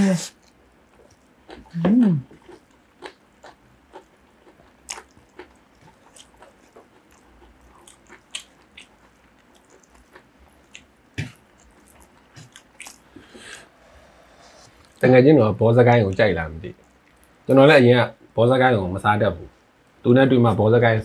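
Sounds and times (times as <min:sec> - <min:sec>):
wet chewing and lip smacks: 0:00.3 - 0:01.7, 0:02.3 - 0:13.2, 0:16.7 - 0:17.4.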